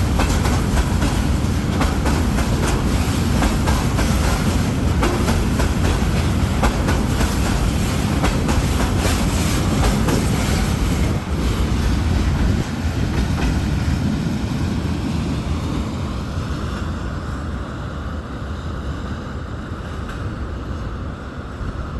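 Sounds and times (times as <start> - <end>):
train wheels clattering over rail joints: 0.0 - 14.4
freight train rumbling: 0.0 - 21.9.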